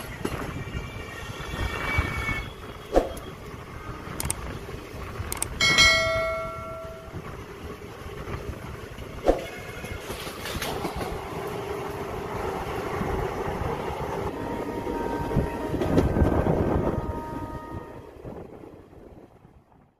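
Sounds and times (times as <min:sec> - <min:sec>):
train wheels rumbling on rail: 0:00.0 - 0:19.9
ringing chime: 0:05.6 - 0:07.2.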